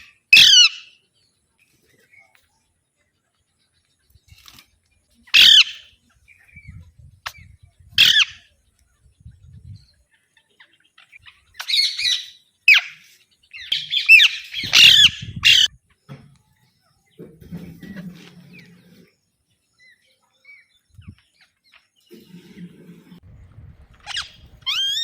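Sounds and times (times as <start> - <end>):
parakeet squawking: 0.0 - 0.9, 5.4 - 5.9, 8.0 - 8.4, 11.6 - 13.0, 13.6 - 15.7, 24.0 - 25.0.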